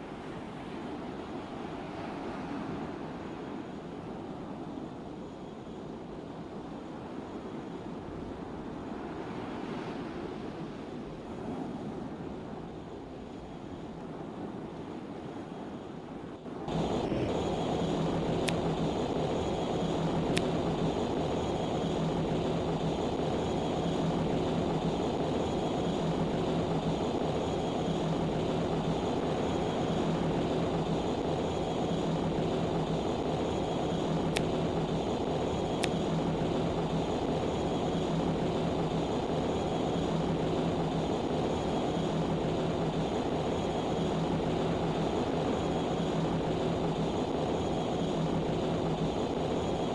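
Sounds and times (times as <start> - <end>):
ship engine drone: 16.5 - 49.9
faint ticks: 17.9 - 19.0, 19.8 - 21.0.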